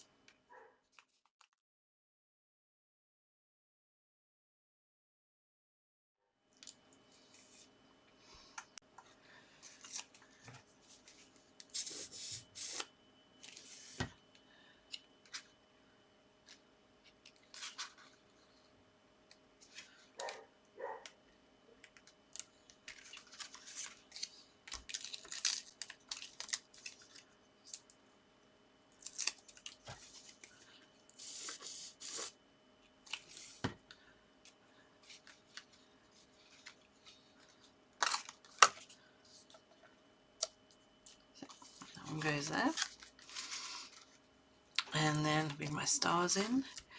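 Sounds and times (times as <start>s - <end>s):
paper rustling: 22.8s - 27.3s.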